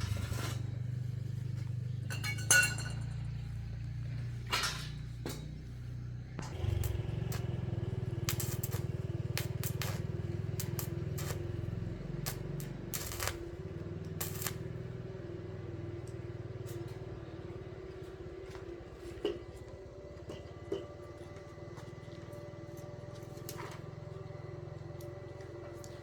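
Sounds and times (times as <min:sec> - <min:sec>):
low machine hum: 0:00.0 - 0:26.0
metallic clinks and knocks: 0:02.0 - 0:03.4.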